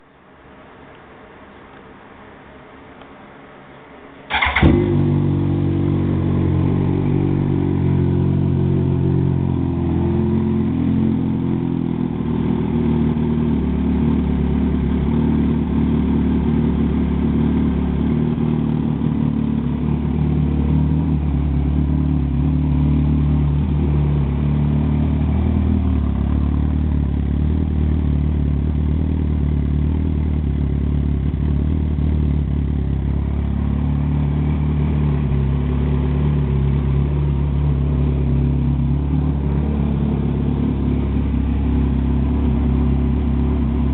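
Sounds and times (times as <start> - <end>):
motorcycle engine idling: 4.3 - 43.9.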